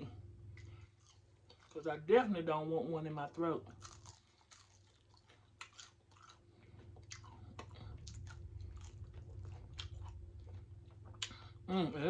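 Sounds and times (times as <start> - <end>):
chewing fried fish: 0.5 - 2.0, 3.1 - 11.6.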